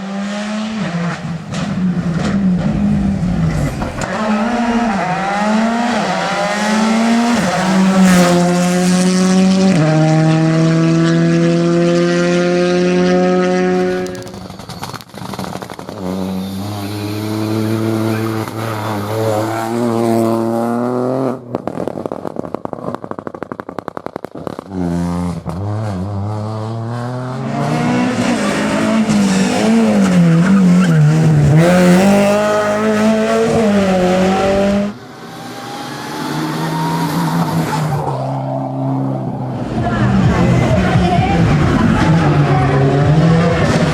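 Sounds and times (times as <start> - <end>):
rally car engine revving: 0.0 - 43.9
exhaust pops and crackles: 13.9 - 16.4, 21.4 - 25.7.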